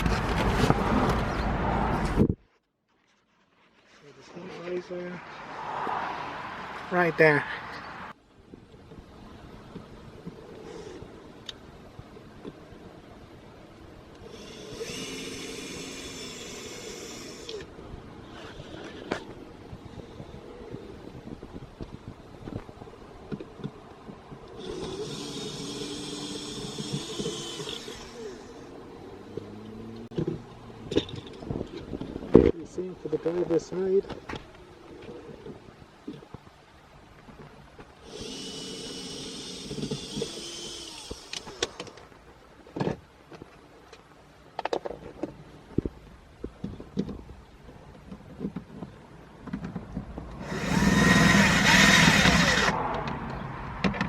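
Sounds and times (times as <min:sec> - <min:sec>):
small motor whining: 0:14.2 - 0:17.7, 0:24.5 - 0:30.1, 0:38.0 - 0:42.0, 0:50.4 - 0:52.8.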